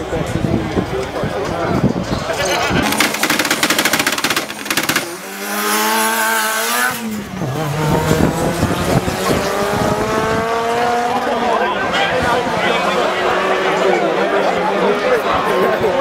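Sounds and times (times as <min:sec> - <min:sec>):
race car engine crackling and pulling: 0:02.3 - 0:15.0.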